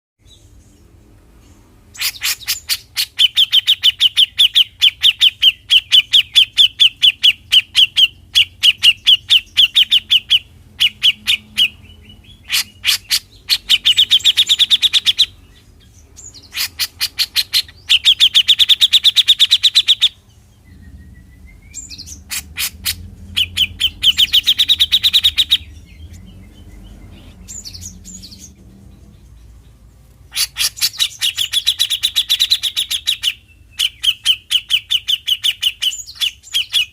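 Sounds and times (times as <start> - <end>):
bird call fast repeated notes: 1.9 - 15.4, 16.2 - 20.2, 20.8 - 25.8, 30.3 - 36.9.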